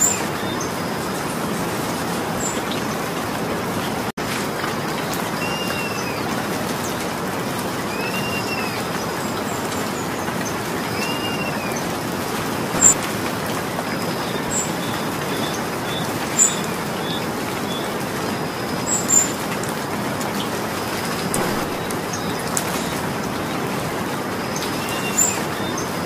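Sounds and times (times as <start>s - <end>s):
steady rain falling: 0.0s - 26.0s
raindrops ticking on hard surface: 11.9s - 26.0s.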